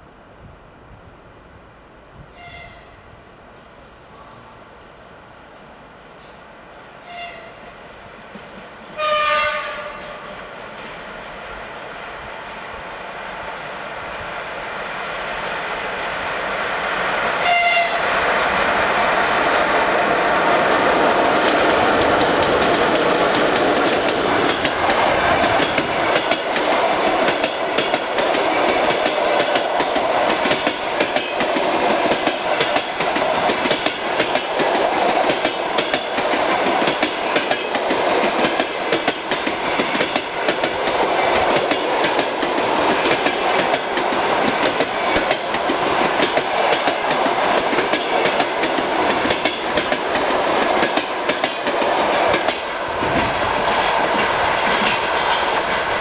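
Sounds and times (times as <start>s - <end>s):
train rushing past: 7.0s - 56.0s
wheels clickety-clack: 20.6s - 56.0s.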